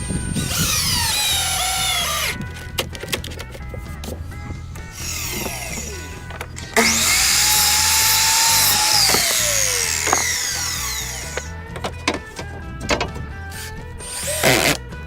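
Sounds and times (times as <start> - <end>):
power tool motor running: 0.0 - 2.4, 4.8 - 11.6, 13.6 - 14.8
background music with steady beat: 0.0 - 15.0.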